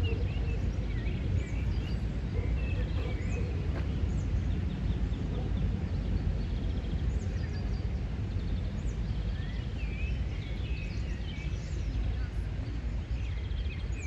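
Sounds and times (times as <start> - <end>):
low outdoor rumble: 0.0 - 9.4
songbirds chirping and trilling: 0.0 - 14.0.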